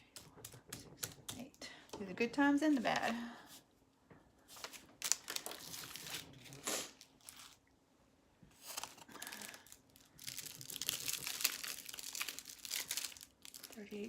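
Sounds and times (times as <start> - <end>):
plastic bags crinkling: 4.6 - 7.6, 8.6 - 14.0.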